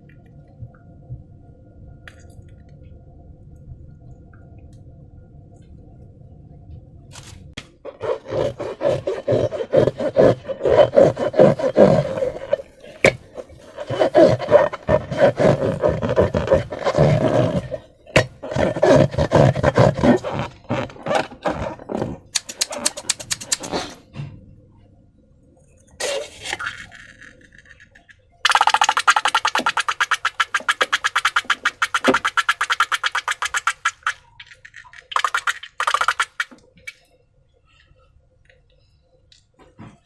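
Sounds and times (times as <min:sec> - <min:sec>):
rubber balloons squeaking: 0:07.9 - 0:24.0, 0:28.5 - 0:34.1.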